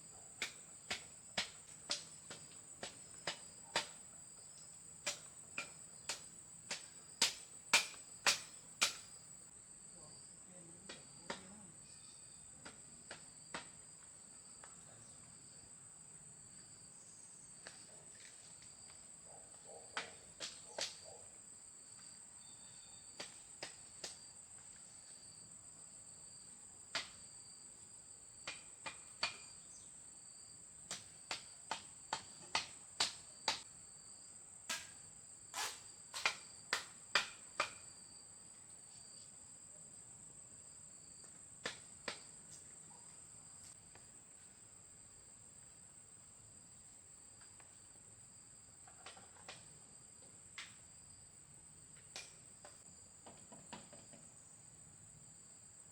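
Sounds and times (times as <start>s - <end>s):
crickets chirping: 0.0s - 55.9s
sharp knocks or taps: 5.0s - 9.1s.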